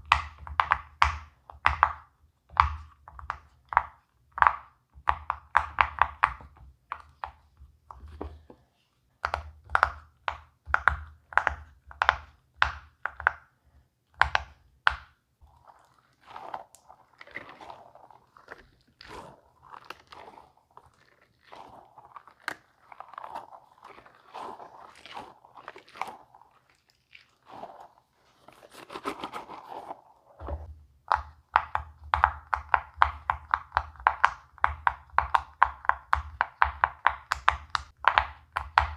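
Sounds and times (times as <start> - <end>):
silicone rustling and squeezing: 15.4 - 30.7
pop-it toy bubbles popping: 31.0 - 38.9.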